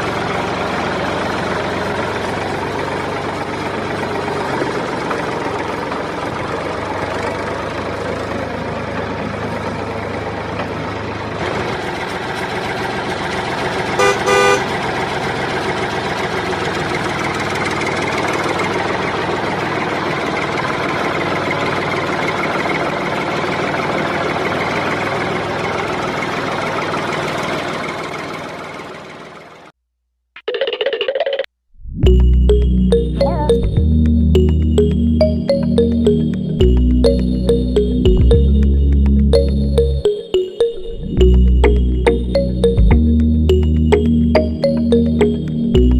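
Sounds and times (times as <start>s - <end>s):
tractor engine running: 0.0s - 29.7s, 32.0s - 45.9s
horn tooting: 14.0s - 14.7s.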